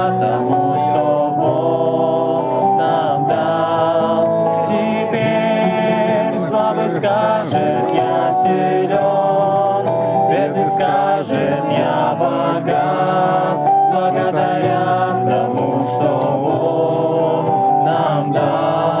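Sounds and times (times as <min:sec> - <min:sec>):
acoustic guitar: 0:00.0 - 0:19.0
group singing a hymn: 0:00.0 - 0:19.0.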